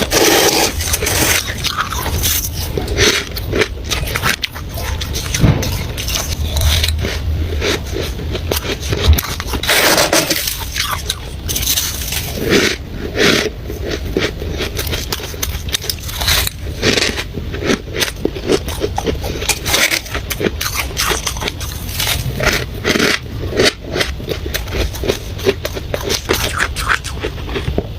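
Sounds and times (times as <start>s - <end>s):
ice being chewed: 0.0s - 27.9s.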